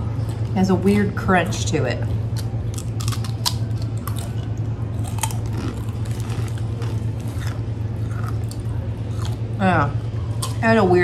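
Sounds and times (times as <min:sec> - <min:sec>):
steady low hum: 0:00.0 - 0:11.0
people crunching snack: 0:02.3 - 0:09.6.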